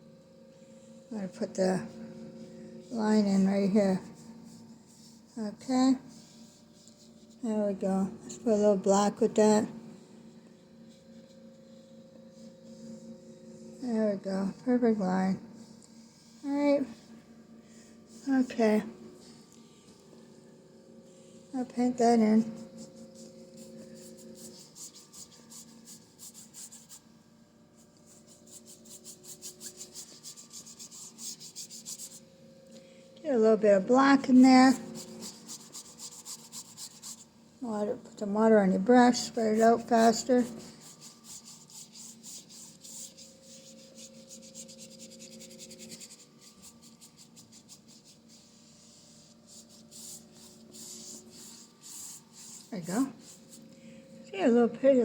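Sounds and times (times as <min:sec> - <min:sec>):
faint steady hum: 0:00.0 - 0:55.0
paintbrush scrubbing on canvas: 0:03.2 - 0:07.5, 0:21.8 - 0:27.1, 0:27.8 - 0:32.4, 0:34.3 - 0:37.4, 0:39.0 - 0:53.8.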